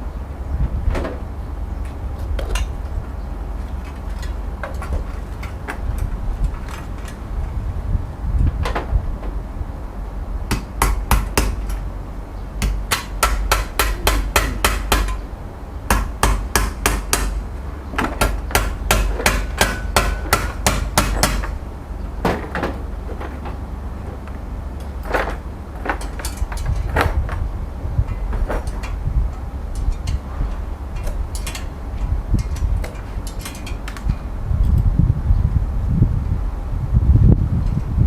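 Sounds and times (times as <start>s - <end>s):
steady low rumble: 0.0s - 38.0s
hammer strikes: 10.5s - 11.8s, 12.6s - 15.2s, 15.9s - 17.4s, 18.0s - 21.6s.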